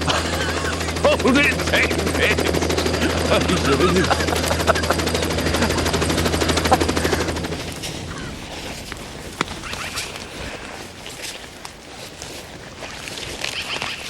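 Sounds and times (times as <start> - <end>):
engine running with rapid chatter: 0.0 - 10.2
faint clicks and crunches: 7.6 - 14.0.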